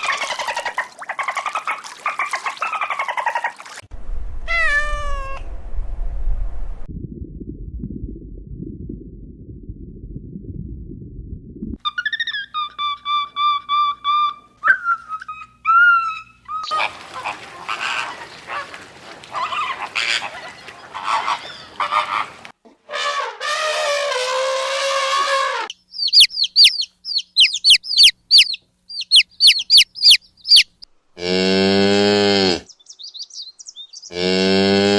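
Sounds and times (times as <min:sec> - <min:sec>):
waterfowl calls: 0:00.0 - 0:03.8, 0:16.2 - 0:24.2, 0:26.0 - 0:30.8
noisy pulsing animal calling: 0:11.9 - 0:31.4
high downward-sweeping bird chirps: 0:25.7 - 0:30.8, 0:32.7 - 0:34.2.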